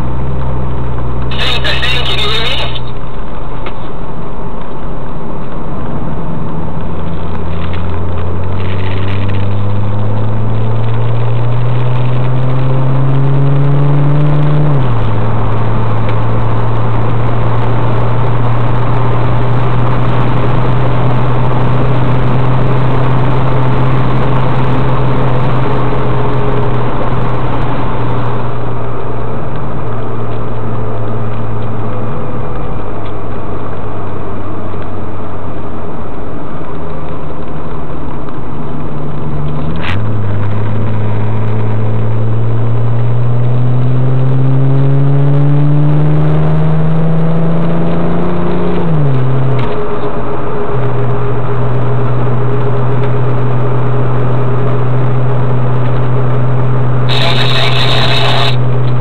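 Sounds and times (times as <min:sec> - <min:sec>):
car engine revving through gears: 0:05.6 - 0:28.4, 0:38.8 - 0:59.0.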